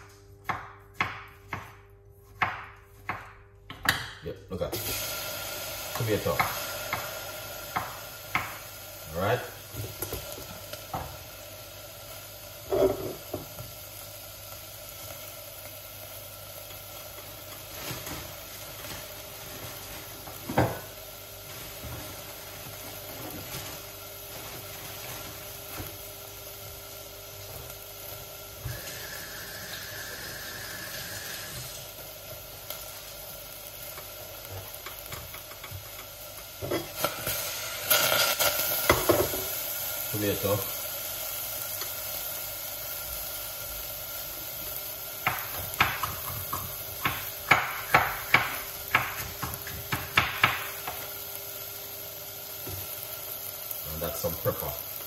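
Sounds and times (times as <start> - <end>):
tomatoes sizzling in a saucepan: 0.0 - 55.0.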